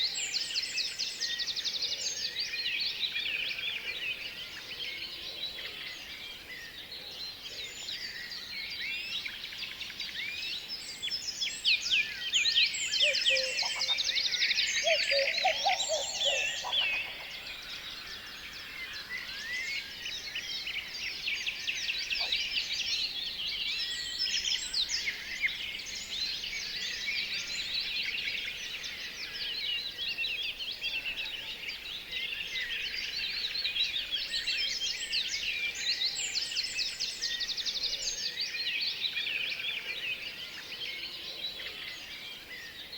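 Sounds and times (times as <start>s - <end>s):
songbirds chirping chorus: 0.0s - 42.9s
lower-pitched bird call: 14.8s - 17.3s.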